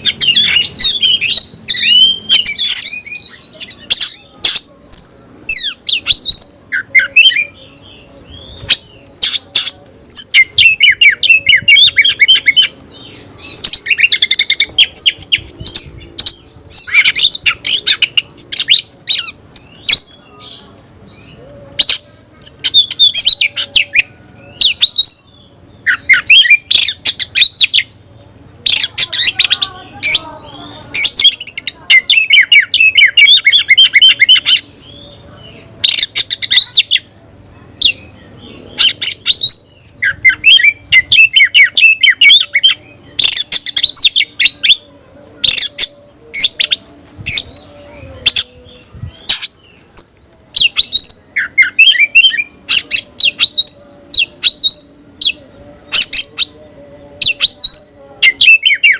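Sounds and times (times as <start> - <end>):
bird singing sharp chirps and trills: 0.0 - 58.9.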